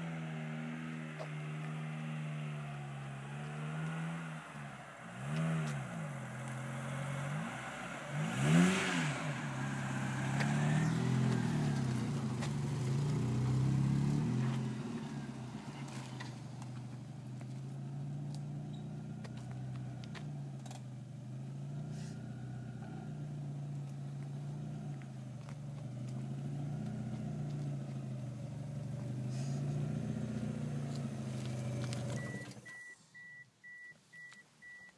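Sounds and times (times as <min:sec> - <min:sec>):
car engine idling: 0:00.0 - 0:33.3
short high beeps: 0:32.2 - 0:34.9.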